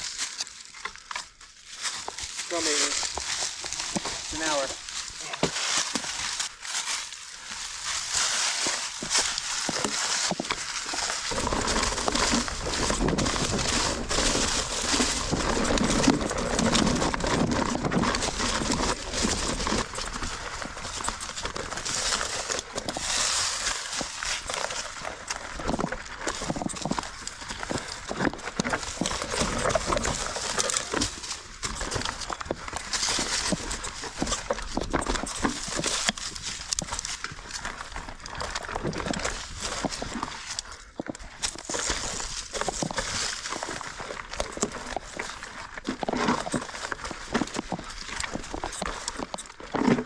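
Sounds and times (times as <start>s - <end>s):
bike rattling: 0.0s - 50.0s
tyres crunching over stones: 0.0s - 50.0s
bike knocks and rattles: 9.2s - 22.2s.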